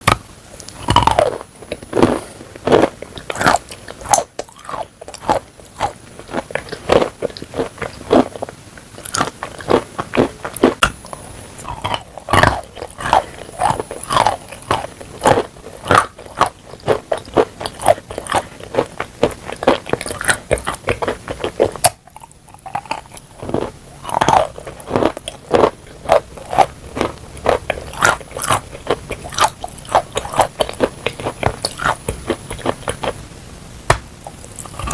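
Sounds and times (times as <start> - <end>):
chewing chalk crunches: 0.1 - 33.2.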